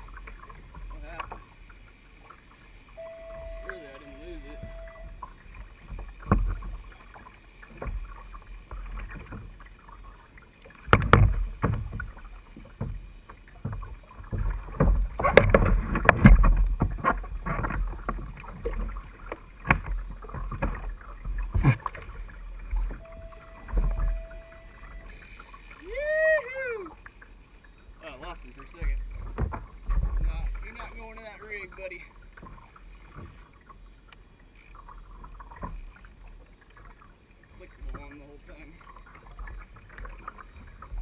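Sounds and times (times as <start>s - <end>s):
water slapping against kayak hull: 5.6s - 23.0s, 28.6s - 33.8s.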